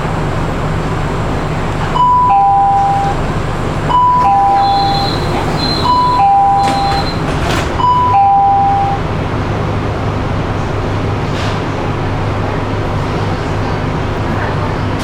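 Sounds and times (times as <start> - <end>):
train hum: 0.0 - 15.0
two-note train door chime: 2.0 - 3.2, 3.9 - 9.0.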